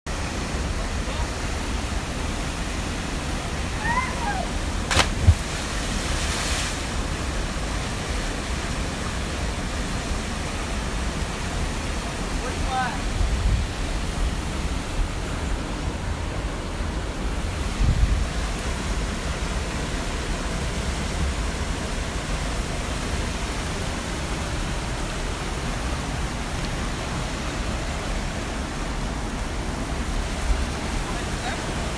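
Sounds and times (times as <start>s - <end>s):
waterfall rushing: 0.1s - 13.2s.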